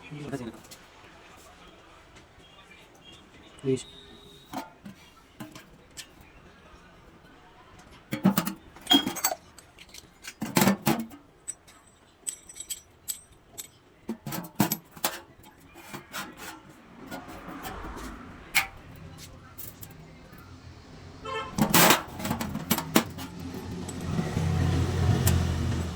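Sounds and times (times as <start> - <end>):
metal parts clinking and knocking: 4.5 - 6.2, 7.8 - 19.0, 19.6 - 20.0, 21.5 - 25.9
soft scraping: 15.6 - 20.4.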